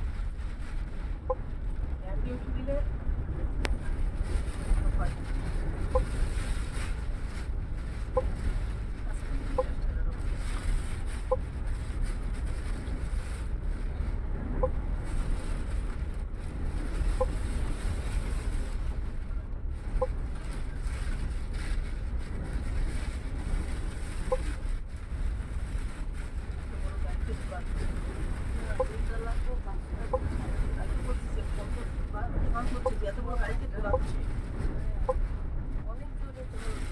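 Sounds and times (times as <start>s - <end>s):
bus engine rumble: 0.0s - 36.9s
storm wind: 0.0s - 36.9s
short faint beeps: 5.9s - 6.2s, 24.2s - 24.6s.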